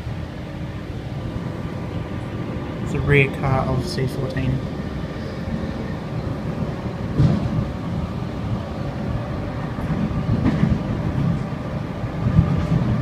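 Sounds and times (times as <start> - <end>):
train rumbling on track: 0.0 - 13.0
train thumps: 5.2 - 13.0.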